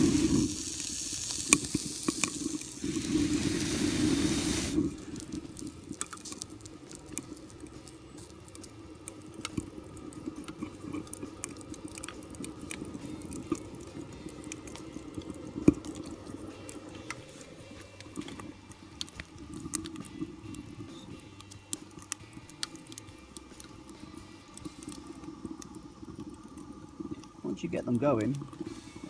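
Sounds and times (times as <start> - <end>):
small fire crackling and popping: 0.0 - 29.0.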